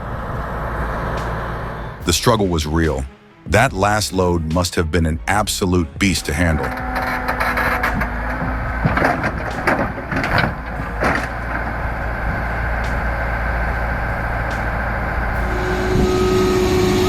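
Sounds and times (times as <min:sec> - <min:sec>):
knocks and clanks: 0:06.6 - 0:16.7
heavy machine rumbling: 0:06.6 - 0:17.0.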